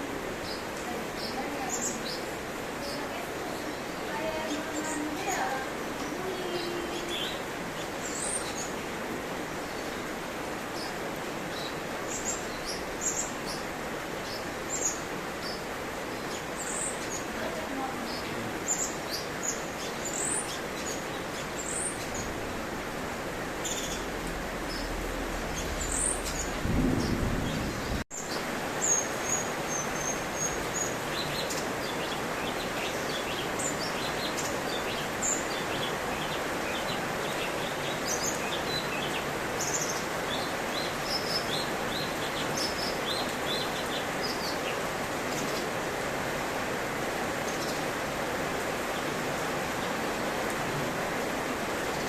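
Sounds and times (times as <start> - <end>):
low rumble: 24.0 - 28.0.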